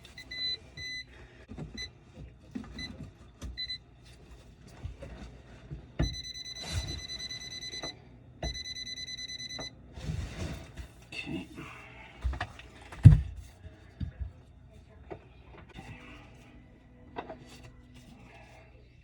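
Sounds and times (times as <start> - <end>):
electronic alarm beeping: 0.0 - 1.1, 3.6 - 3.8, 6.0 - 9.7.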